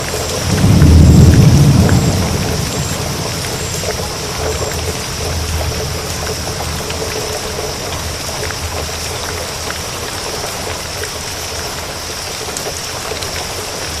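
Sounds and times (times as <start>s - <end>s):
low thunder rumble: 0.0s - 9.4s
steady rain falling: 0.0s - 14.0s.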